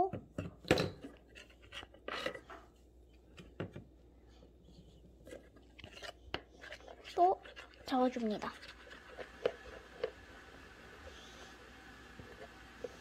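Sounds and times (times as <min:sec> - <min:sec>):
utensil scraping slime in container: 0:05.3 - 0:10.2.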